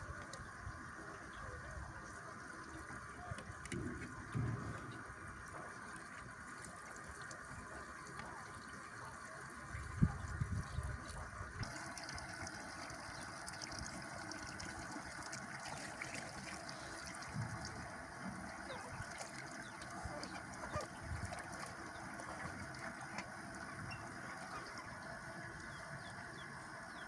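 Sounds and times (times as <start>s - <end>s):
flowing water rushing: 0.0s - 27.0s.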